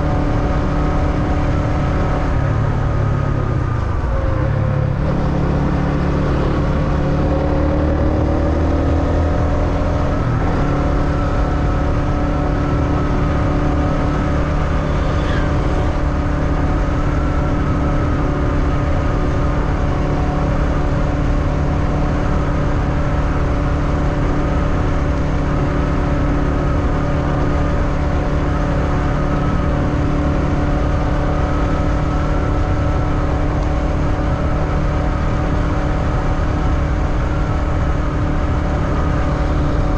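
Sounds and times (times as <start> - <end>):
motorbike engine running: 0.0 - 39.9
brief high squeak: 14.8 - 16.0.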